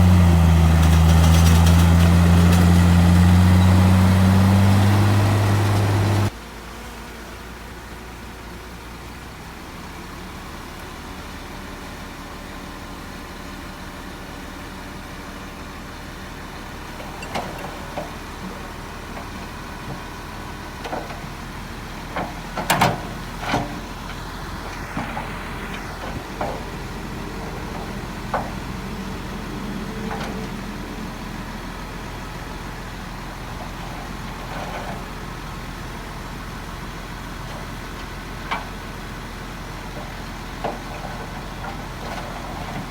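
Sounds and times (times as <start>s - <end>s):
diesel machinery running: 0.0s - 6.4s, 9.2s - 42.9s
metallic clanks and knocks: 22.2s - 24.2s.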